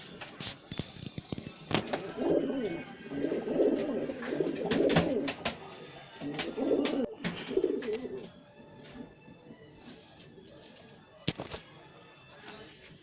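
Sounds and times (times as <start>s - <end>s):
pigeons cooing: 1.6s - 5.6s, 6.2s - 9.1s.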